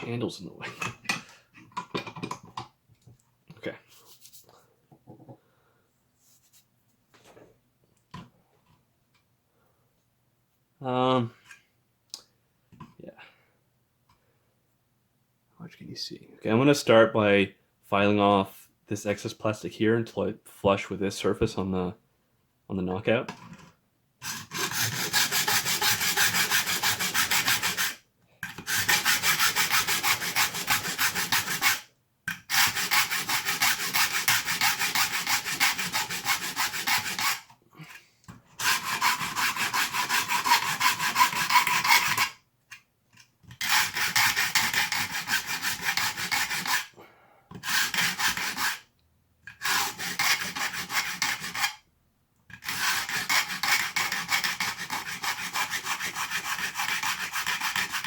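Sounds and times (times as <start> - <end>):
hand file rasping on plastic: 24.2 - 37.9, 38.6 - 42.4, 43.4 - 51.8, 52.5 - 58.0.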